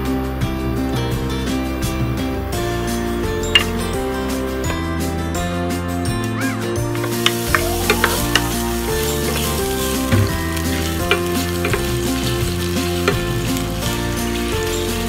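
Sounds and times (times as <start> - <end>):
ginger sizzling in hot oil: 6.9 - 15.0
wooden spatula clicking on pan: 9.3 - 13.8.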